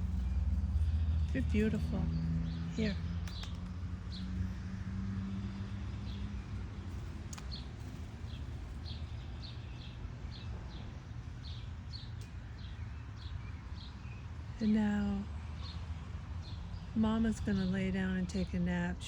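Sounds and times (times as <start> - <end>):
small bird chirping: 0.0 - 4.6
steady low rumble: 0.0 - 4.9.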